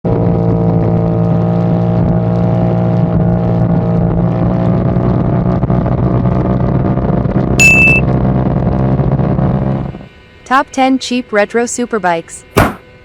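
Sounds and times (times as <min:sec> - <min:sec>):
motorcycle engine running: 0:05.1 - 0:09.9.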